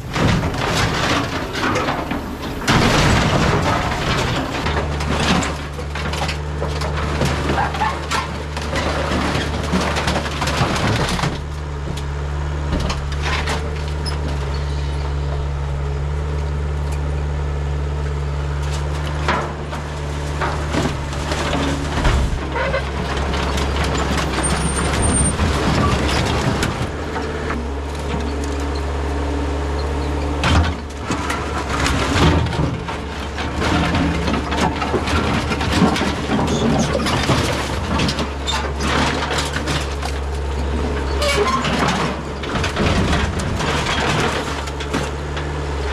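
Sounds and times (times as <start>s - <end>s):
knocks and clanks: 0.0s - 12.0s, 19.1s - 28.3s, 30.4s - 40.2s
excavator diesel engine running: 0.0s - 45.9s.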